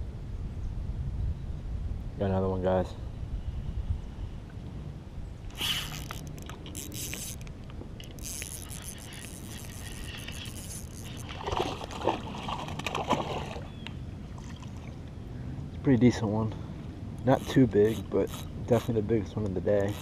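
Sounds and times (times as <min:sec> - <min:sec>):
water splashing against kayak: 0:05.5 - 0:13.7.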